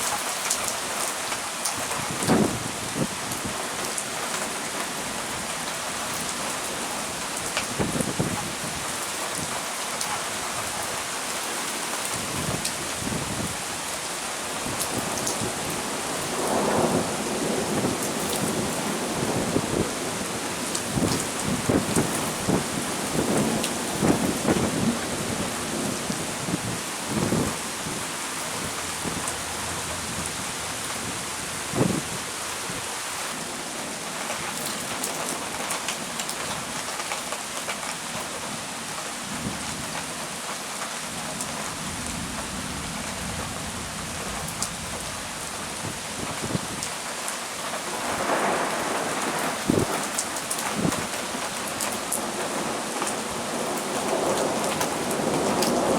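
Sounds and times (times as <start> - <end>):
heavy rain falling: 0.0 - 55.9
thunder rumbling: 14.6 - 32.2, 47.8 - 55.9.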